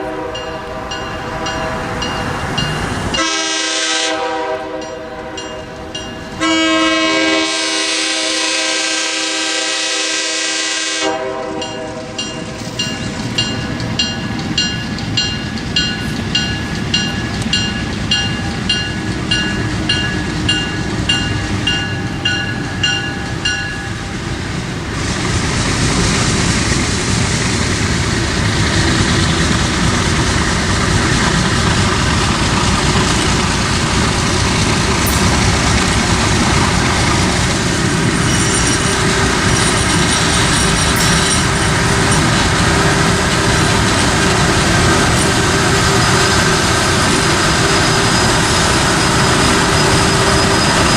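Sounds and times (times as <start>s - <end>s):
train horn: 0.0s - 2.1s, 3.1s - 5.8s, 6.4s - 12.3s
train wheels rumbling on rails: 0.0s - 50.9s
bell ringing: 0.4s - 3.0s, 11.6s - 24.2s, 35.0s - 35.8s, 38.0s - 42.5s.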